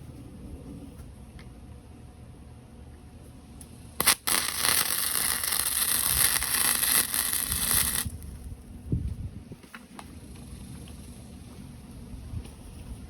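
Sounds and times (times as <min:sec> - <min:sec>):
welder arc sizzling: 0:04.0 - 0:08.4.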